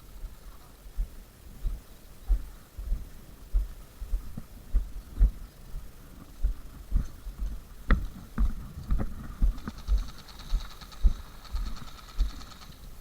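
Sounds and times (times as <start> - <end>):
dull low thumps on microphone: 1.0 - 10.1.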